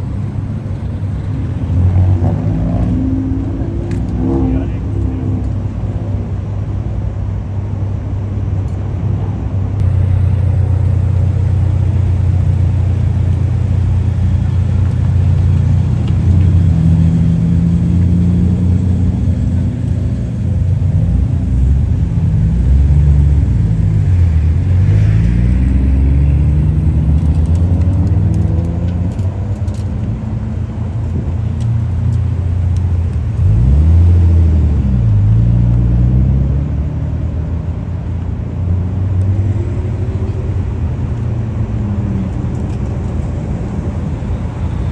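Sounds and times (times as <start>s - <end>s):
car engines revving: 0.0s - 44.9s.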